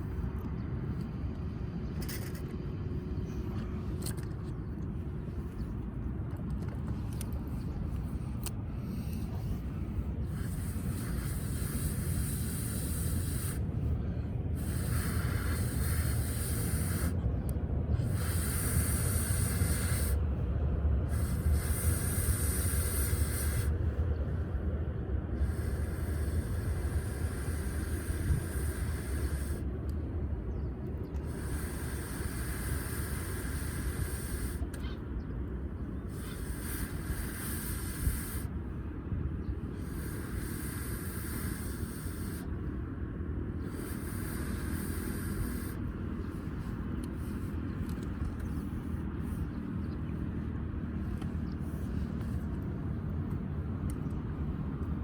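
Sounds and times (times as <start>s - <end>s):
air blown into fire hissing: 10.2s - 13.8s, 14.5s - 17.2s, 17.9s - 20.3s, 21.0s - 23.8s, 25.4s - 29.7s, 31.2s - 34.7s, 36.1s - 38.5s, 39.7s - 42.5s, 43.6s - 47.6s.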